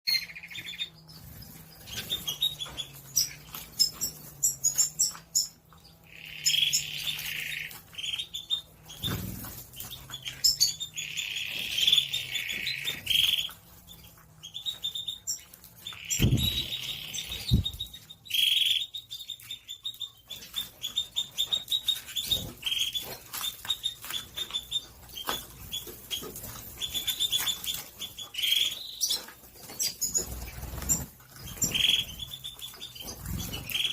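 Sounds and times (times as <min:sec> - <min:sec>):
canaries chirping and trilling: 0:00.1 - 0:33.9
wing flutters: 0:21.6 - 0:33.9.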